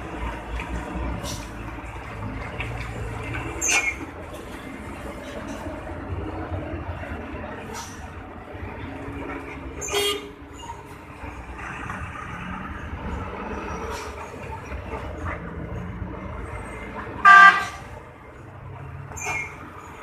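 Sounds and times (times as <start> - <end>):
engines rumbling: 0.0 - 20.0
vehicle horn honking: 17.2 - 17.8.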